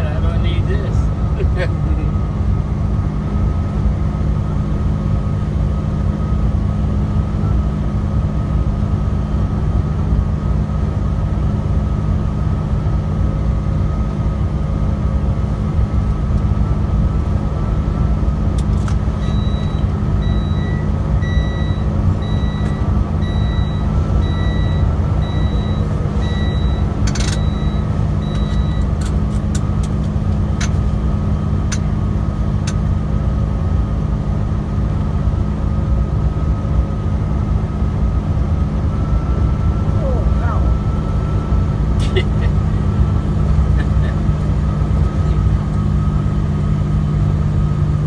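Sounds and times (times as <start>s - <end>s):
truck engine low drone: 0.0s - 48.0s
electronic beeper: 19.2s - 29.0s.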